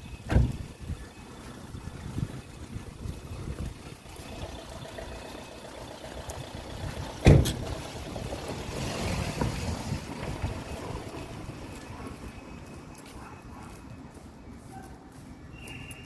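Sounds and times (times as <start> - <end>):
wind buffeting microphone: 0.0 - 4.5, 6.1 - 12.7.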